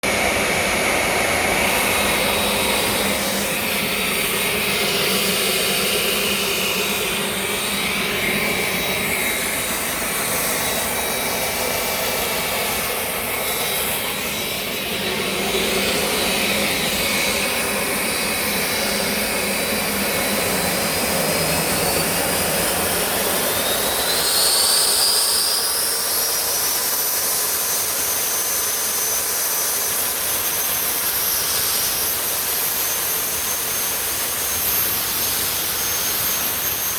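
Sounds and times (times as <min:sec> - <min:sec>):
jet engine rushing and whining: 0:00.0 - 0:36.9.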